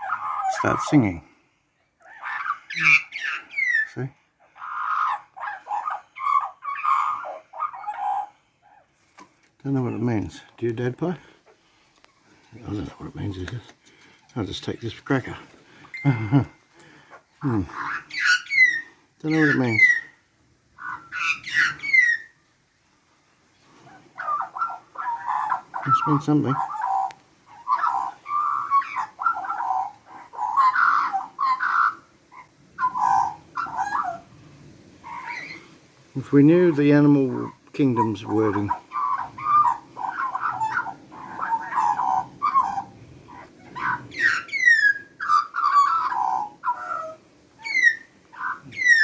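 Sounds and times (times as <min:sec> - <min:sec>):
magpie warbling song: 0:02.1 - 0:08.3, 0:17.4 - 0:20.1, 0:20.8 - 0:22.3, 0:24.2 - 0:32.0, 0:32.8 - 0:34.3, 0:37.4 - 0:49.0
magpie call gliding down: 0:37.4 - 0:49.0.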